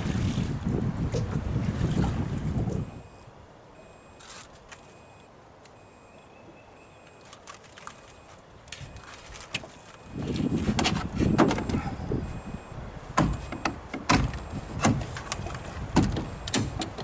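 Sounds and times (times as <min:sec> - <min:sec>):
wind buffeting microphone: 0:00.0 - 0:03.2, 0:10.0 - 0:17.0.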